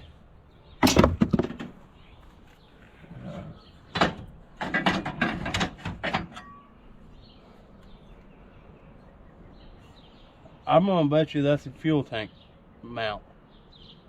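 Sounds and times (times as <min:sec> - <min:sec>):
metal parts clanking: 0:00.8 - 0:01.8, 0:04.0 - 0:06.7.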